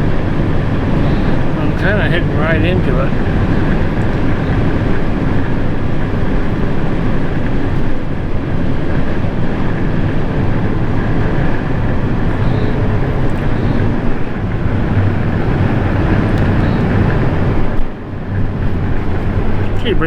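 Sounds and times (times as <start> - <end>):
vehicle driving on highway: 0.0 - 20.0.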